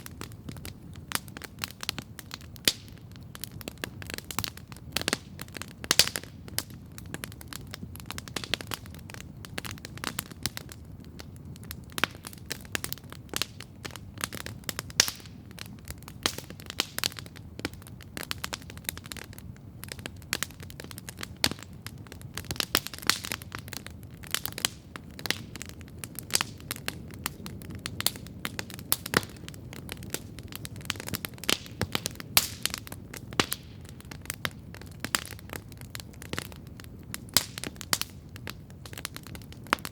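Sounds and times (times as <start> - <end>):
campfire crackling: 0.0 - 39.9
sharp snaps and pops: 11.6 - 39.9.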